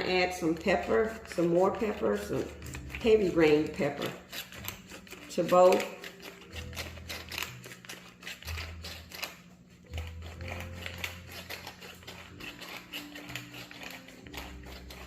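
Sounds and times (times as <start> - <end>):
pepper clicks and scratches: 0.0 - 15.0.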